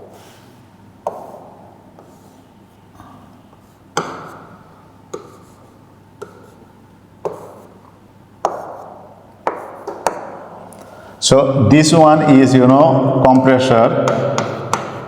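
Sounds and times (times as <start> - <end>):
pen tapping on writing board: 3.9 - 5.6, 6.2 - 6.6, 7.2 - 7.8, 8.4 - 10.4, 14.1 - 15.0.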